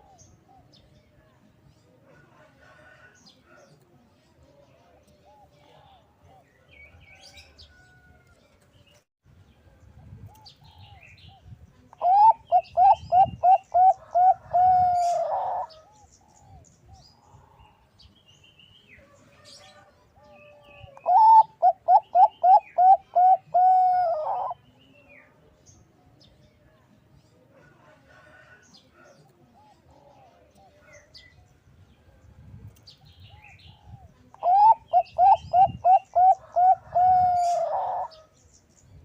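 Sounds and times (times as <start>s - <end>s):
dove cooing: 12.0s - 16.6s, 20.6s - 24.6s, 33.3s - 38.3s.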